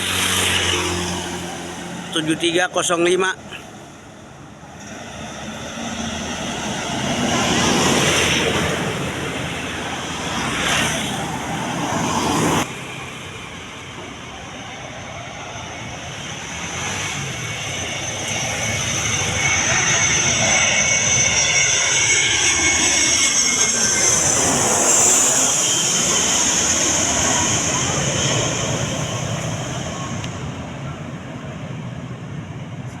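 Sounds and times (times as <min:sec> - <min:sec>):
high jet whine: 0:00.0 - 0:33.0
jet engines roaring: 0:00.0 - 0:33.0.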